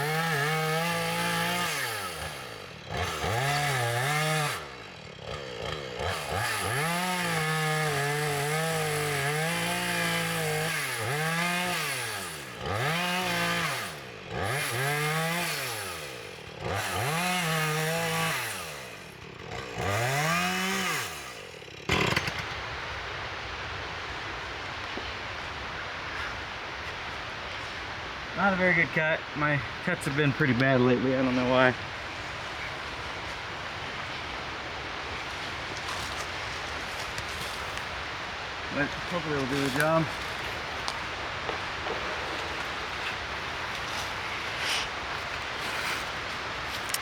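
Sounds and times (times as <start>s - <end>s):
chainsaw cutting wood: 0.0s - 47.0s
chainsaw knock: 21.8s - 22.5s, 38.8s - 45.0s.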